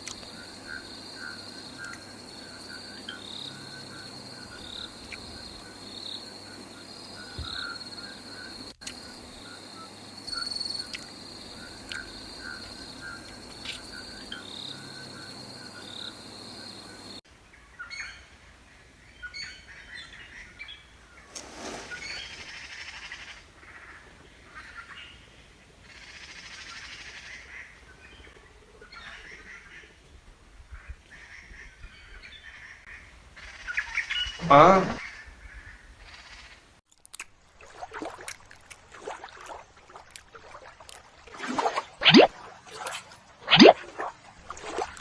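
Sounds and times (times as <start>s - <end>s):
birds chirping: 21.0s - 23.2s.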